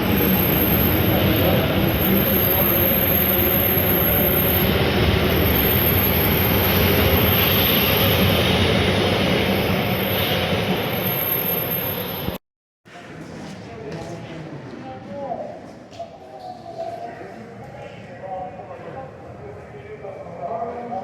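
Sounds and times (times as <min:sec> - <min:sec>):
train running: 0:00.0 - 0:12.4.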